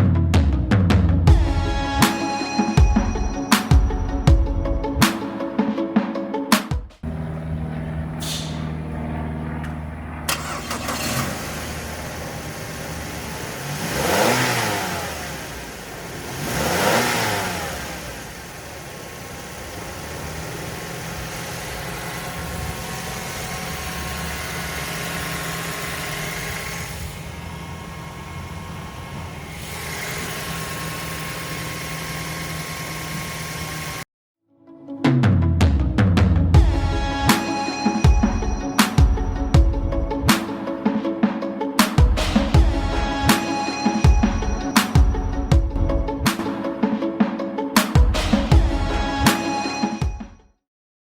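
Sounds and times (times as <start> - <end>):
car engine idling and revving: 0.0 - 5.0, 7.0 - 34.1, 41.9 - 46.5.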